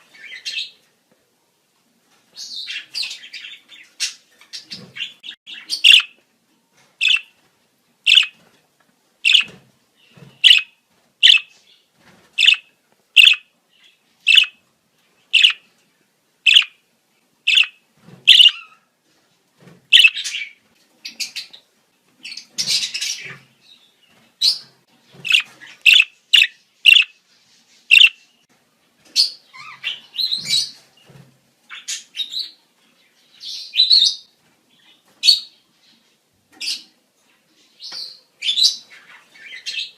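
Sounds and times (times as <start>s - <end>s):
budgerigars chirping: 2.4s - 6.2s, 7.0s - 7.3s, 8.1s - 8.4s, 9.2s - 9.6s, 10.4s - 11.6s, 12.4s - 13.5s, 14.3s - 14.6s, 15.3s - 15.6s, 16.5s - 16.8s, 17.5s - 18.8s, 19.9s - 21.5s, 25.2s - 27.2s, 27.9s - 28.2s
budgerigars chattering warble: 5.0s - 6.1s, 7.0s - 7.2s, 8.1s - 8.3s, 9.3s - 9.5s, 10.4s - 11.5s, 12.4s - 12.6s, 13.2s - 13.4s, 14.3s - 14.6s, 15.4s - 15.6s, 16.5s - 16.7s, 17.5s - 17.7s, 18.3s - 18.6s, 19.9s - 20.4s, 25.2s - 27.1s, 27.9s - 28.2s.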